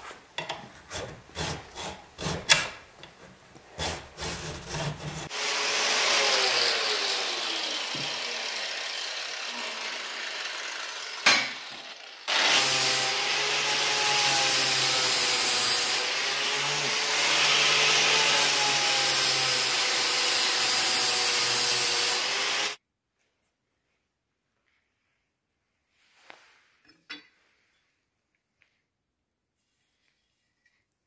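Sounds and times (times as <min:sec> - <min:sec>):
power tool grinding: 0:03.7 - 0:22.8.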